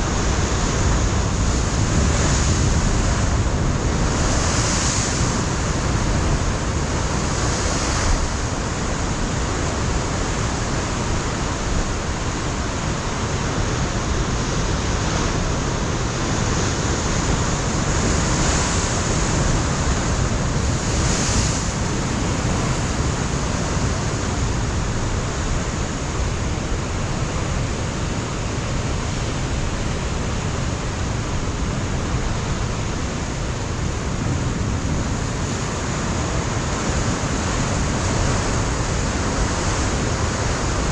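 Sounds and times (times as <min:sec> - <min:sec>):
wind on microphone: 0:00.0 - 0:40.9.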